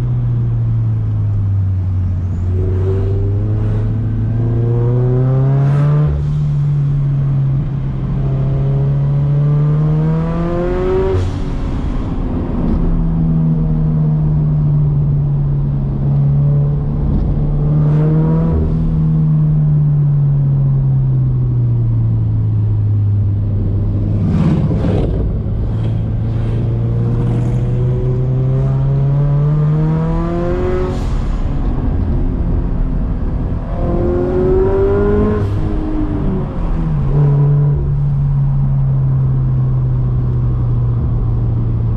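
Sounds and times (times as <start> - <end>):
car engine revving through gears: 8.2 - 11.2, 17.0 - 19.0, 23.6 - 31.3, 33.1 - 38.2.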